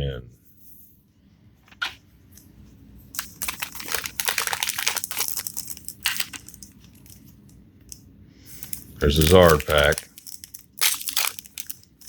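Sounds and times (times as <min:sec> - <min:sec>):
foil wrapper crinkling: 0:03.2 - 0:12.0.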